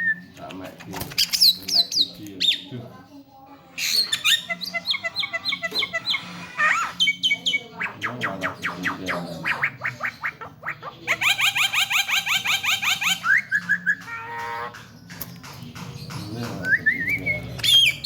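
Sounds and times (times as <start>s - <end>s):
bird whistled chirps and squawks: 3.8s - 14.8s, 16.6s - 18.0s.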